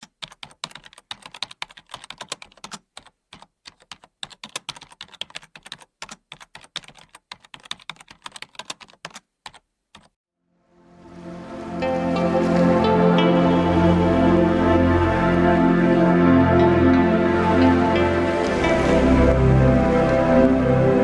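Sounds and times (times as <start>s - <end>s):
keyboard typing: 0.0s - 10.2s.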